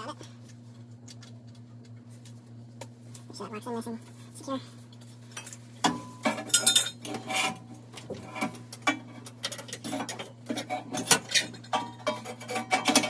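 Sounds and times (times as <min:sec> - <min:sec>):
steady low hum: 0:00.0 - 0:13.0
metal parts clinking and scraping: 0:06.3 - 0:07.6.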